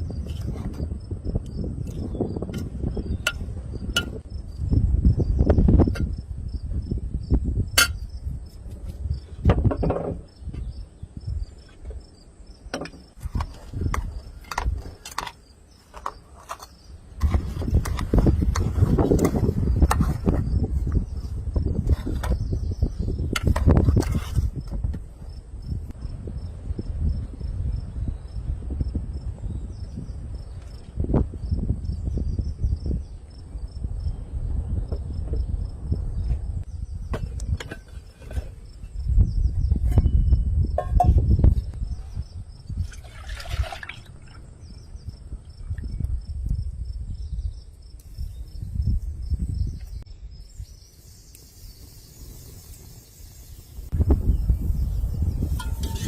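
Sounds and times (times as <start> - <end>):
crickets chirping: 0.0 - 56.0
insects chirping faintly: 44.3 - 56.0.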